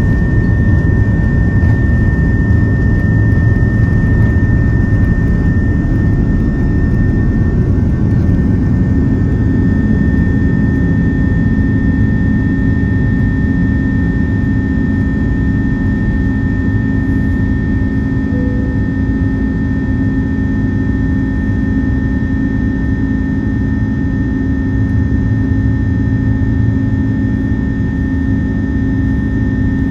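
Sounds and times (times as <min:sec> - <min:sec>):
jet engine and airflow rumble: 0:00.0 - 0:29.9
thin high tone: 0:18.3 - 0:19.3.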